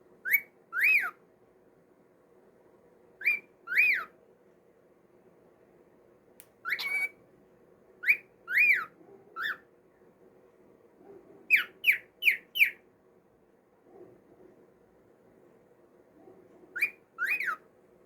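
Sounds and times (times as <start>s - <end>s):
cockatiel whistling: 0.2s - 1.2s, 3.2s - 4.1s, 6.6s - 7.2s, 8.0s - 9.6s, 16.8s - 17.6s.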